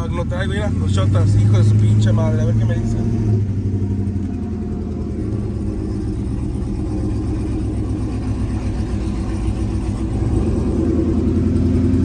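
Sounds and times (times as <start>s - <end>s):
truck engine droning: 0.0s - 12.0s.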